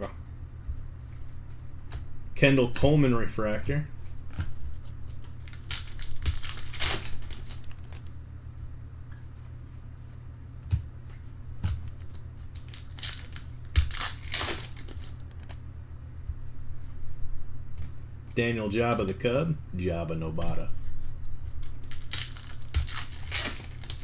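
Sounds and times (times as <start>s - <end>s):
steady low hum: 0.0s - 24.0s
foil packs crinkling: 5.0s - 8.1s, 11.9s - 15.6s, 21.6s - 24.0s.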